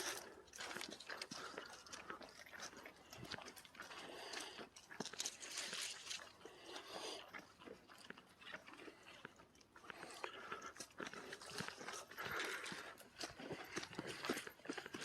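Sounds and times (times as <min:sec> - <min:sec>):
footsteps crunching on a trail: 0:00.0 - 0:06.9, 0:10.0 - 0:15.0.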